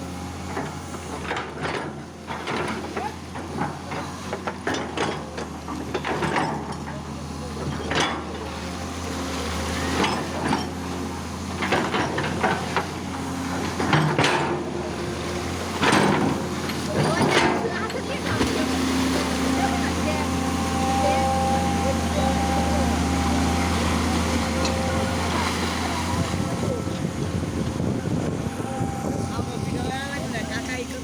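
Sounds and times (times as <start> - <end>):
excavator diesel engine running: 0.0 - 31.0
knocks and clanks from digging: 0.5 - 8.3, 9.9 - 18.8.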